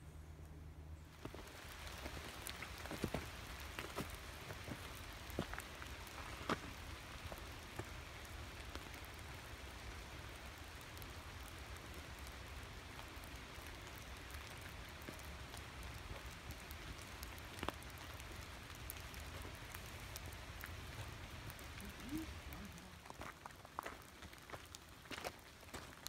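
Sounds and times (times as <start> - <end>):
light rain hissing: 1.0 - 26.0
raindrops ticking: 1.1 - 26.0.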